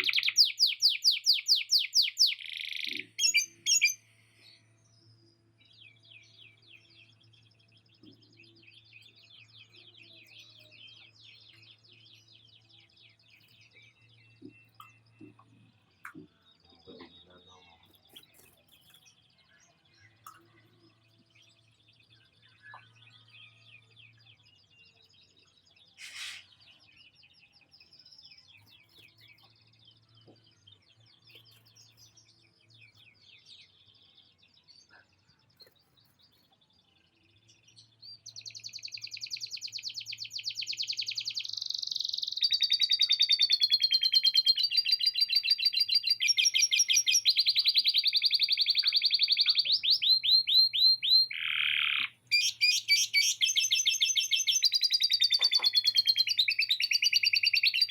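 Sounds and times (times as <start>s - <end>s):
canary singing: 0.0s - 4.2s, 38.0s - 57.9s.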